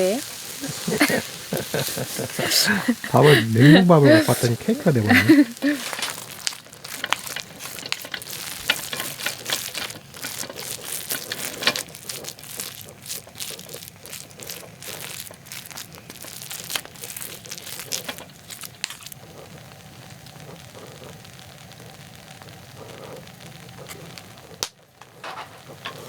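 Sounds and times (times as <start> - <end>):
rice sizzling: 0.0 - 26.0
steady hiss: 0.0 - 26.0
spoon scraping rice in a pan: 0.2 - 19.2, 25.0 - 26.0.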